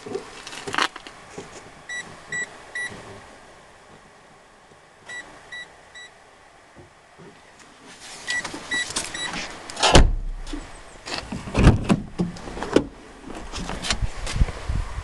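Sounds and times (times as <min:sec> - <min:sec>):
short electronic beeps: 0:01.9 - 0:02.9, 0:08.3 - 0:09.3
clunks and knocks: 0:08.4 - 0:14.0.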